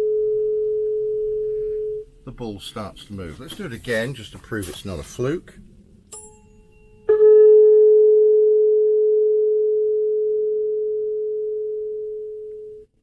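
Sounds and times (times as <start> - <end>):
tuning fork ringing: 0.0 - 2.0, 6.1 - 12.9.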